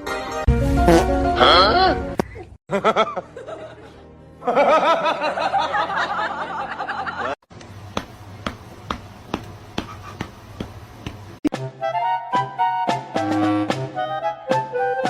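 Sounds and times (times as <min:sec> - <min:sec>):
high voice cackling: 0:01.4 - 0:02.5.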